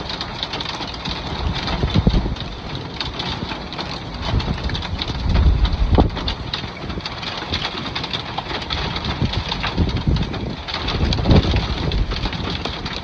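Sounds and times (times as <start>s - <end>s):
rain and hail tapping: 0.0s - 13.0s
wind rumbling on microphone: 0.0s - 13.0s.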